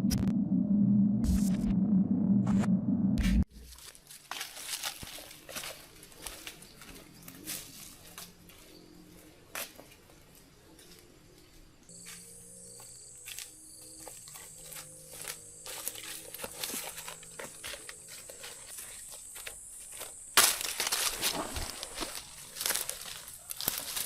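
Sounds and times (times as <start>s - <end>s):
loud crinkling rustle: 3.6s - 8.3s, 14.3s - 24.0s
high-pitched insect trill: 11.9s - 21.2s.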